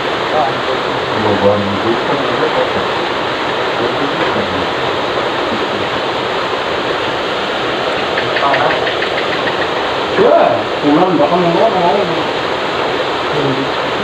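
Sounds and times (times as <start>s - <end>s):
loud rushing noise: 0.0s - 14.0s
quick ticks: 8.1s - 9.9s.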